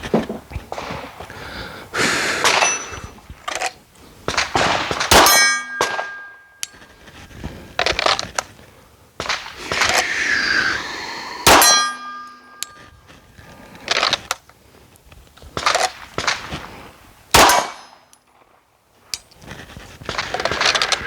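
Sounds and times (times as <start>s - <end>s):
metallic ring: 2.5s - 3.0s, 5.2s - 6.8s, 11.5s - 13.0s
pistol shots: 4.3s - 6.6s, 11.4s - 12.8s, 17.3s - 18.0s.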